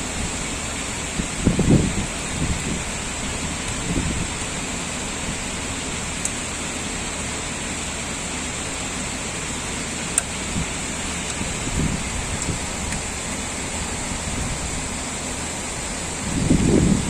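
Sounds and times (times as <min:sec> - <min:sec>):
heavy rain hissing: 0:00.0 - 0:17.0
low rumbles: 0:00.0 - 0:17.0.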